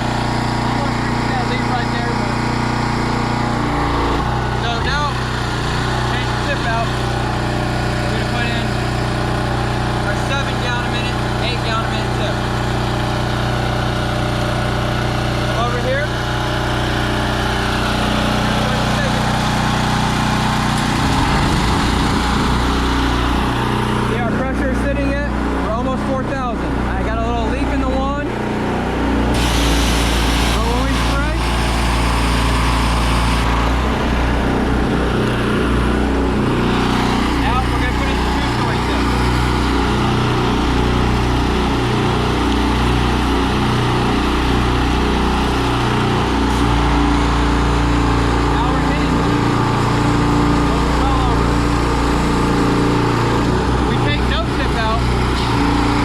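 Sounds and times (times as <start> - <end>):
petrol engines running: 0.0 - 56.0
high-pressure water spraying: 29.3 - 33.6.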